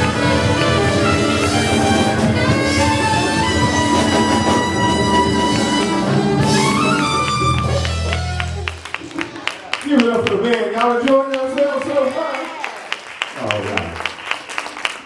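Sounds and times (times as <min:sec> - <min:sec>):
jazz band playing: 0:00.0 - 0:09.5.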